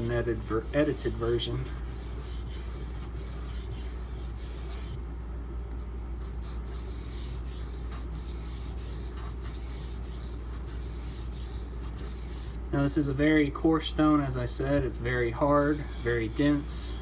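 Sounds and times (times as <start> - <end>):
knife scraping on whetstone: 0.0 - 5.0, 6.3 - 12.6, 15.5 - 17.0.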